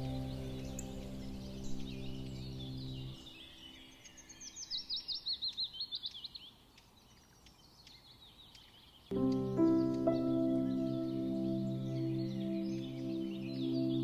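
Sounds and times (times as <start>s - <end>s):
calm relaxation music: 0.0s - 5.1s, 9.1s - 14.0s
bird chirps: 0.0s - 14.0s
songbird singing: 0.0s - 14.0s.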